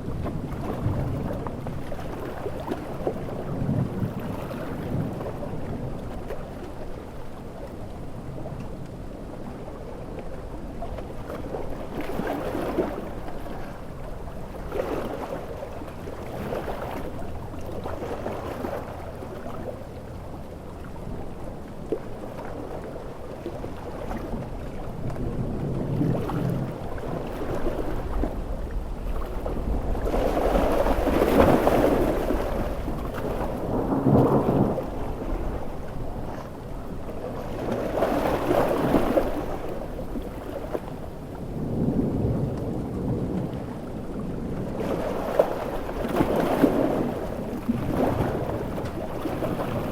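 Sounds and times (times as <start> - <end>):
ocean waves breaking: 0.0 - 49.9
stormy wind: 0.0 - 49.9.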